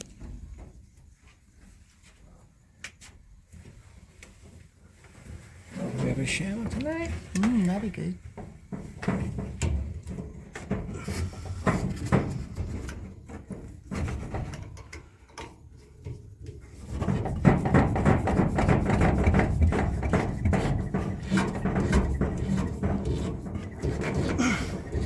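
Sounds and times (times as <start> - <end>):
rubbing and clattering of parts: 5.1 - 25.0
knocks and clicks of pipe fittings: 8.4 - 25.0.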